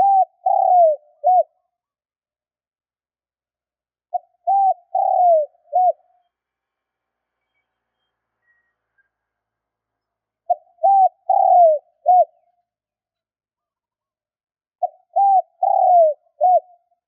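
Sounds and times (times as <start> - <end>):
dove cooing: 0.0 - 1.6, 4.1 - 6.2, 10.5 - 12.5, 14.8 - 16.9.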